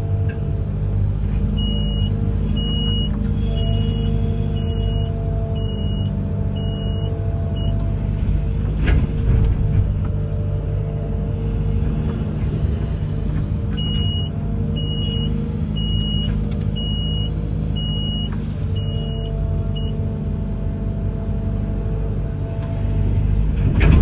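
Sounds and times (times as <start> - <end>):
excavator engine rumbling: 0.0 - 24.0.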